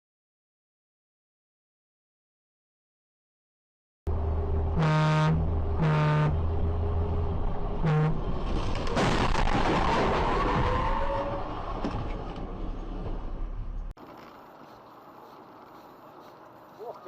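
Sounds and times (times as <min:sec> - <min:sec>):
road and engine drone: 0:04.1 - 0:17.0
car horn honking: 0:04.8 - 0:06.4, 0:07.8 - 0:08.2.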